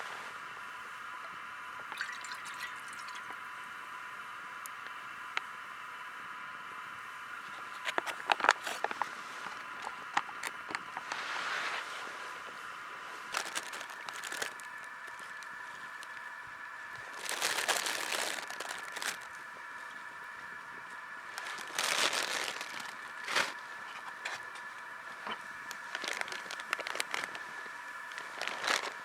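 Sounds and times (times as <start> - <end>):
steady high hiss: 0.0 - 29.0
crinkling handling noises: 7.3 - 29.0.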